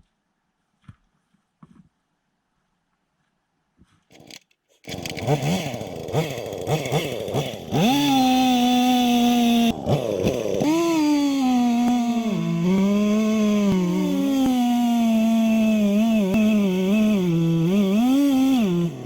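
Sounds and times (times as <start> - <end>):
chainsaw revving: 4.1 - 19.0.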